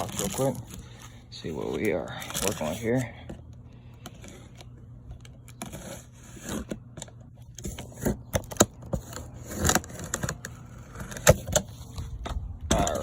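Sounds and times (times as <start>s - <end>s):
cardboard box being opened: 0.0s - 1.1s.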